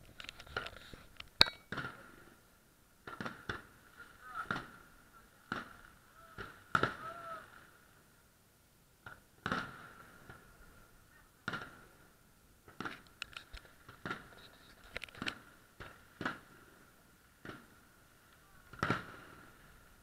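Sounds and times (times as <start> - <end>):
distant fireworks bangs: 3.0 - 7.7, 9.0 - 10.7, 11.4 - 13.1, 13.8 - 14.4, 15.2 - 18.0, 18.6 - 19.8.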